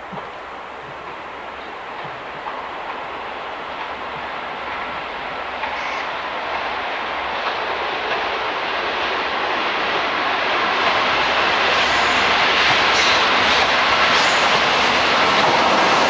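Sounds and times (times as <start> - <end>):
train rushing past: 0.0 - 16.0.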